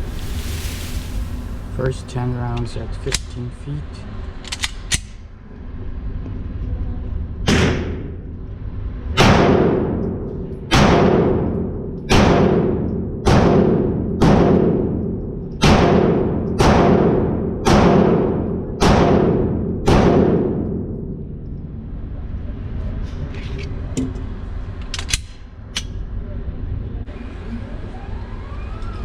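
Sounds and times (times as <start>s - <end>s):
pistol shots echoing indoors: 9.2s - 21.2s.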